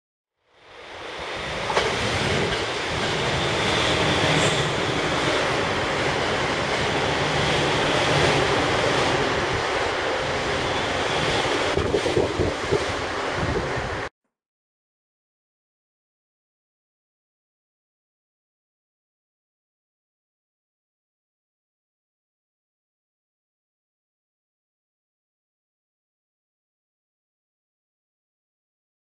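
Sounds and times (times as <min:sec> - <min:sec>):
train wheels rushing on rail: 0:00.6 - 0:14.1.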